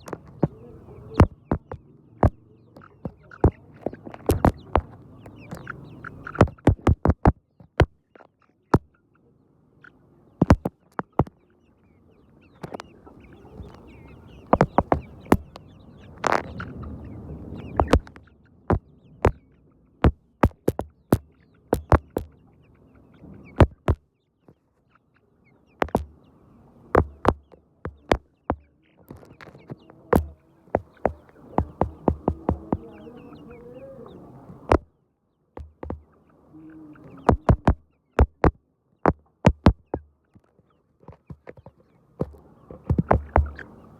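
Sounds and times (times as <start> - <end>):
sharp taps and clicks: 0.0 - 0.6, 1.2 - 5.7, 6.3 - 8.0, 10.4 - 11.3, 12.6 - 12.9, 14.5 - 15.6, 17.8 - 19.4, 20.0 - 22.3, 23.6 - 24.0, 25.8 - 26.1, 27.0 - 32.8, 34.7 - 34.9, 35.6 - 36.0, 37.3 - 40.5, 41.1 - 43.6
chickens murmuring: 0.0 - 6.9, 8.2 - 19.9, 20.5 - 34.8, 35.8 - 38.4, 39.2 - 43.9.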